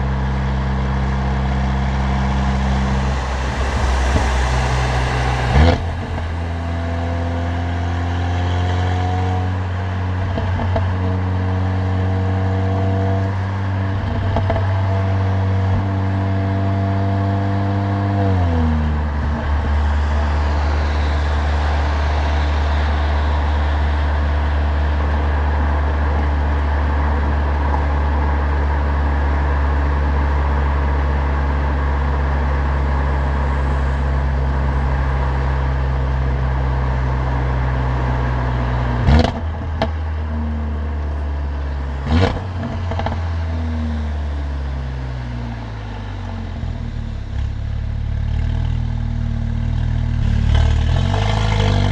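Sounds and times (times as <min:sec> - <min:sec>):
car engine with loud exhaust: 0:00.0 - 0:51.9
sharp bang: 0:01.8 - 0:07.7.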